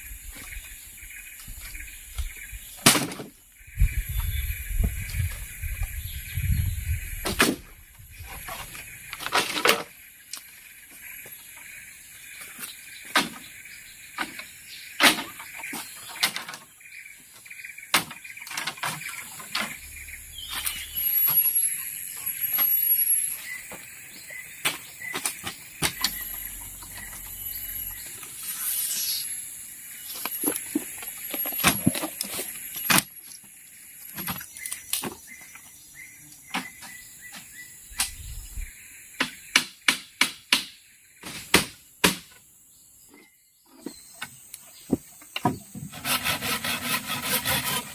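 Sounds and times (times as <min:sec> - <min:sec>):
high insect buzz: 0:25.2 - 0:30.8
knocks and taps on bamboo: 0:39.2 - 0:42.4, 0:44.2 - 0:45.9.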